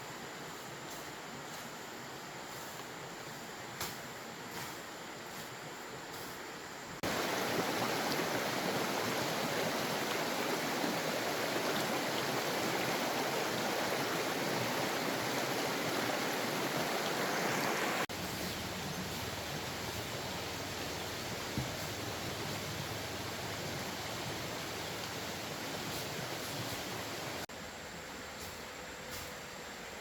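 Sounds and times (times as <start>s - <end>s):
running water rushing: 7.0s - 27.5s.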